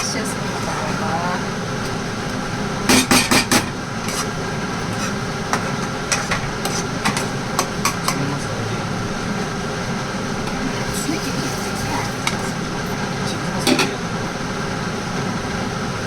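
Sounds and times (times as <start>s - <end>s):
kitchen hum: 0.0s - 16.0s
utensils knocking against pan: 2.9s - 4.3s, 4.9s - 8.2s, 13.6s - 14.0s.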